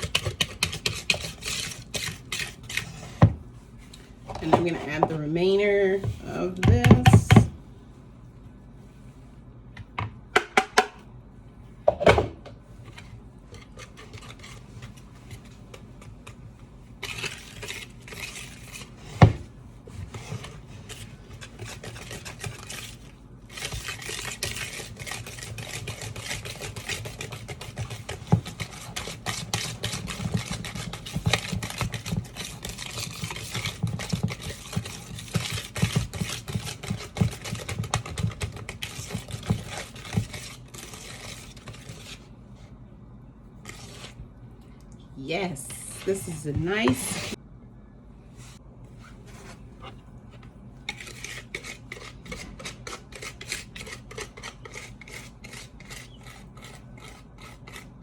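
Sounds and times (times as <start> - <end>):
utensil scraping a bowl: 0.0 - 7.5, 12.9 - 42.7, 43.6 - 44.2, 45.5 - 47.4, 48.5 - 58.0.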